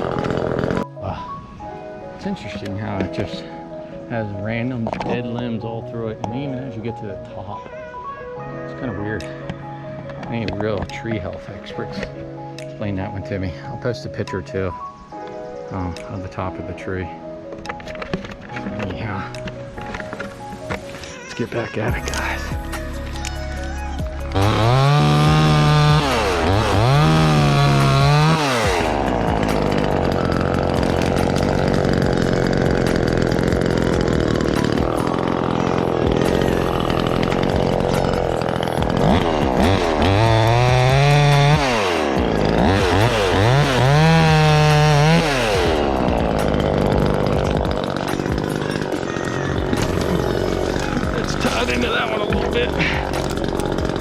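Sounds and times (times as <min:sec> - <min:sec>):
chainsaw revving and cutting wood: 0:00.0 - 0:00.9, 0:17.6 - 0:54.0.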